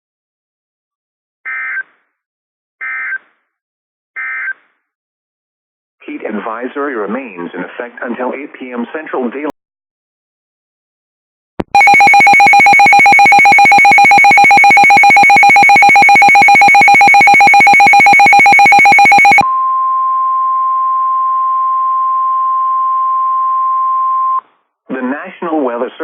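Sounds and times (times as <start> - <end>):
rapidly pulsing electronic alarm: 11.8 - 19.4
steady single-pitch alarm tone: 11.8 - 19.4.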